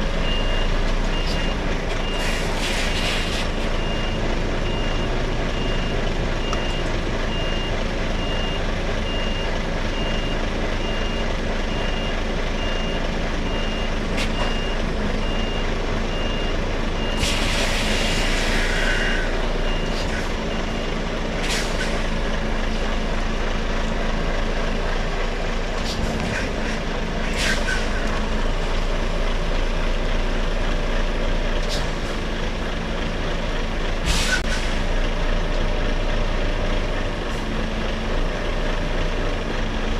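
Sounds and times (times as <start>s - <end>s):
lorry diesel engine running: 0.0s - 39.9s
reversing alarm beeping: 0.2s - 2.4s, 3.8s - 20.9s
air brake hiss: 2.2s - 3.6s, 17.2s - 19.3s, 21.4s - 22.1s, 27.3s - 28.1s, 31.6s - 32.0s, 34.0s - 34.9s.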